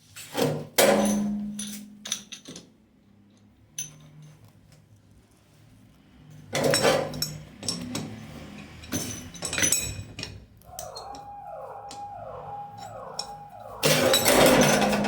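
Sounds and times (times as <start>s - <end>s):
falling electronic tones: 10.7s - 15.0s
steady electronic tone: 10.7s - 15.0s.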